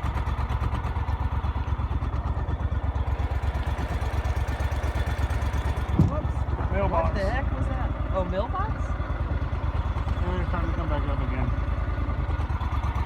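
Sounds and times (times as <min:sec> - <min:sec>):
boat motor running: 0:00.0 - 0:13.0.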